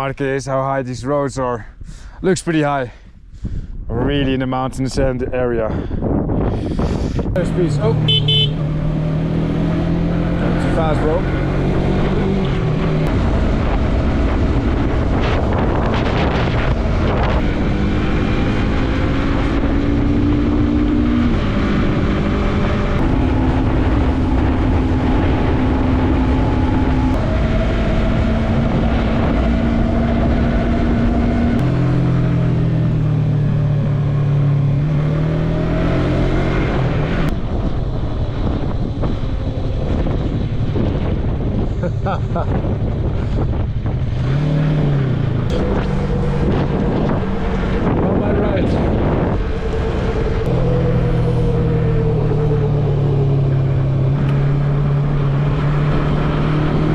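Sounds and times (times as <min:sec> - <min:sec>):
wind rushing over microphone: 0:00.0 - 0:56.9
motorcycle engine running: 0:07.8 - 0:08.6.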